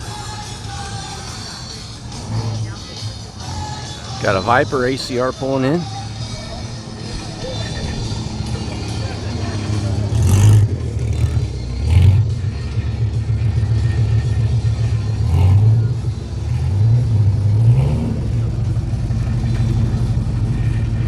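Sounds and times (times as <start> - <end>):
car engine rumbling: 0.0 - 21.0.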